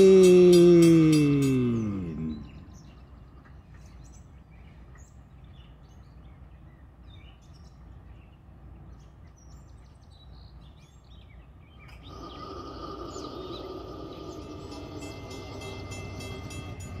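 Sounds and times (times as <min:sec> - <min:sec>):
freight train approaching: 0:00.0 - 0:05.8, 0:12.0 - 0:17.0
birds chirping: 0:00.0 - 0:17.0
low outdoor rumble: 0:00.0 - 0:17.0.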